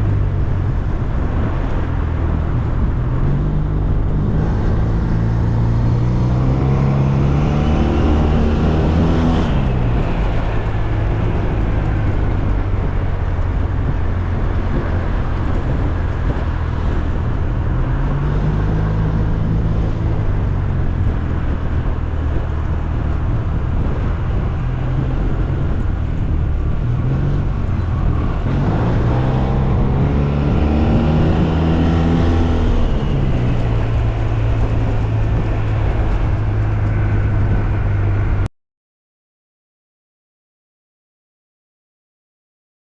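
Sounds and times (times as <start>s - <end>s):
wind and road noise: 0.0s - 38.5s
scooter engine revving: 25.0s - 36.4s.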